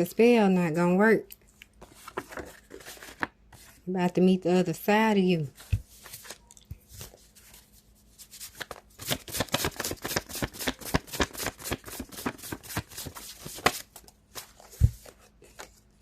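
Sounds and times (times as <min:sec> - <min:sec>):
cards being shuffled: 0:08.2 - 0:15.8.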